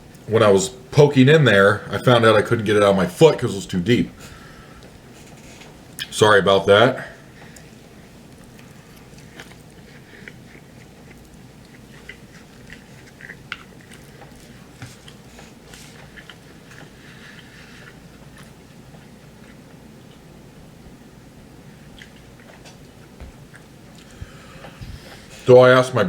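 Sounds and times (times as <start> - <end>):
low steady hum: 0.0 - 26.0
person chewing food: 7.3 - 20.4, 21.6 - 25.4.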